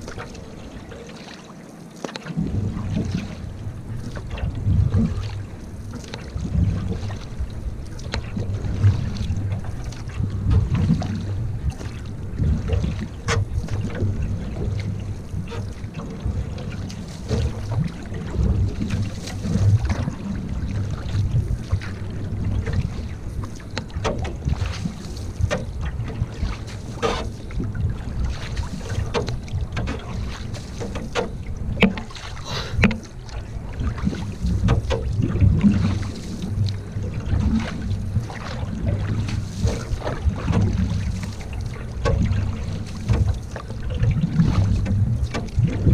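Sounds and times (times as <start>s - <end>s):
water splashes and drips: 0.0s - 45.9s
wind on microphone: 2.4s - 45.9s
knocks on canoe: 17.1s - 20.1s, 23.5s - 33.2s, 33.8s - 45.9s.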